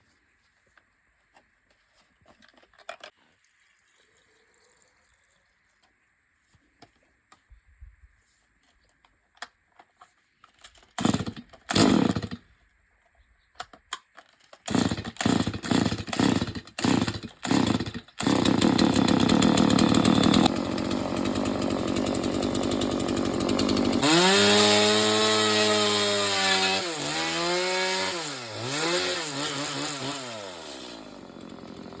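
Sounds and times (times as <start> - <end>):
chainsaw pull-start: 10.7 - 12.4, 14.3 - 32.0
chainsaw engine at high revs: 11.0 - 12.4, 14.7 - 32.0.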